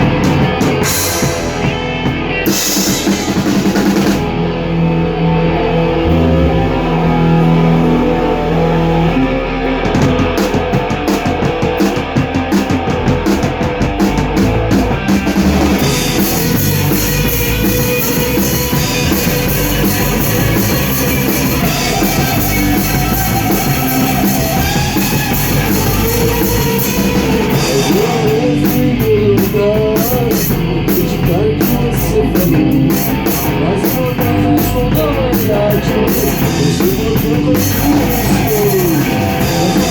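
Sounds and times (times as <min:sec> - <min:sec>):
bending guitar notes: 0:00.0 - 0:29.4
rock band playing live: 0:00.0 - 0:39.9.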